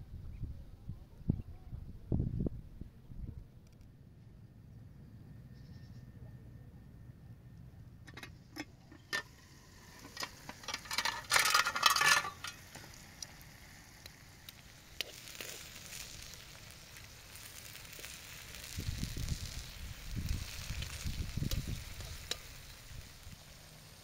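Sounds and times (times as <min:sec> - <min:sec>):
food sizzling: 0:08.1 - 0:24.0
metal tongs scraping steel pan: 0:09.9 - 0:12.7.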